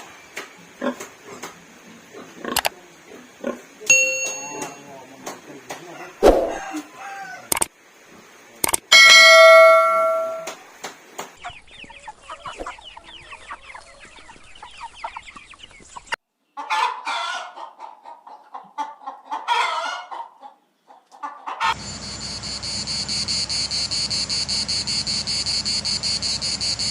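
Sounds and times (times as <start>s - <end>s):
chickens clucking: 0.0s - 8.2s, 9.4s - 21.8s
insects chirping: 21.8s - 26.9s.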